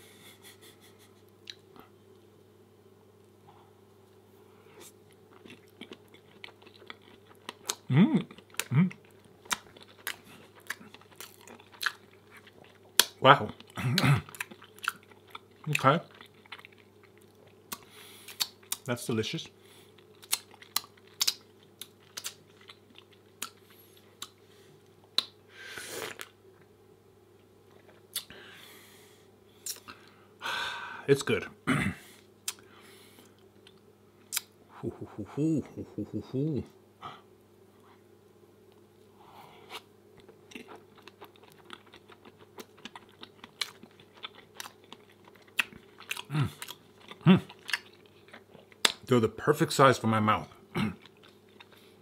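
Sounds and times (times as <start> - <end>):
faint steady hum: 0.0 - 52.0
chewing soft pancake: 4.5 - 18.9, 19.6 - 26.4, 39.5 - 49.1, 50.8 - 52.0
wet mouth clicks and smacks: 17.7 - 18.9, 20.2 - 21.4, 22.1 - 22.4, 28.1 - 28.3, 29.6 - 29.9, 32.4 - 32.6, 33.7 - 34.5.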